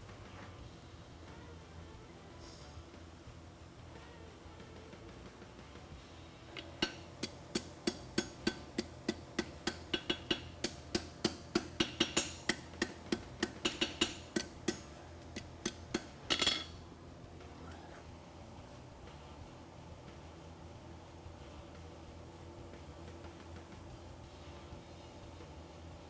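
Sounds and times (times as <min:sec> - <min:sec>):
hammer striking steel on anvil: 0:06.5 - 0:16.8.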